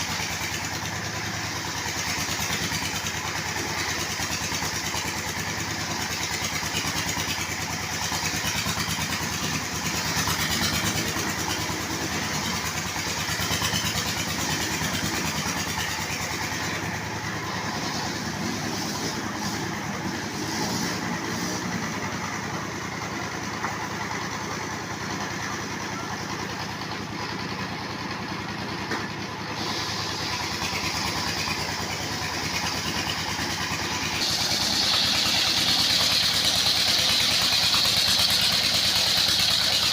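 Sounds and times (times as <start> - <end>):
sawmill engine running: 0.0 - 39.9
high hiss: 34.2 - 37.8.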